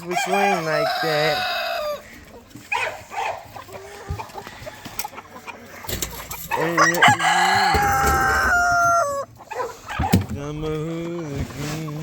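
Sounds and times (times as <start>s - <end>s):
rooster crowing: 0.0s - 2.0s, 6.6s - 9.3s
chickens clucking: 0.0s - 12.0s.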